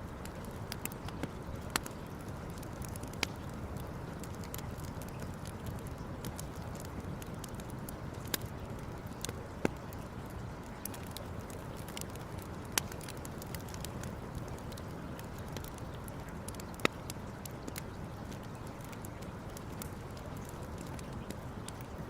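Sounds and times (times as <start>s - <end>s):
wood campfire crackling: 0.0s - 22.0s
fire pops: 0.1s - 21.9s.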